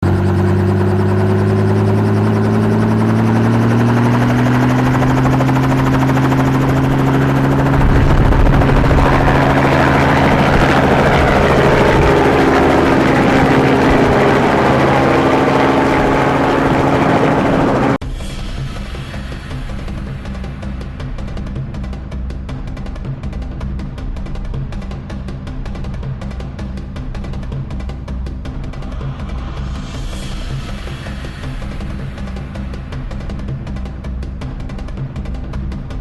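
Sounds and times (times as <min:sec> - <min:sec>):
helicopter engine and rotor drone: 0:00.0 - 0:36.0.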